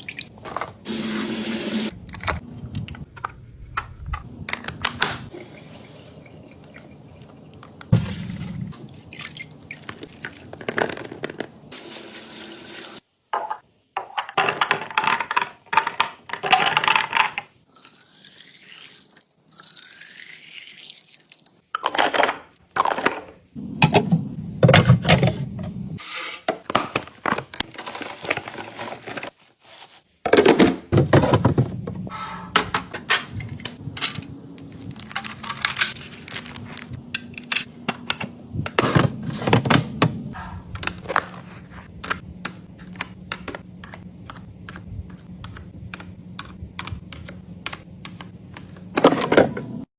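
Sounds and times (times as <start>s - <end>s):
containers clicking and knocking: 40.8s - 49.7s.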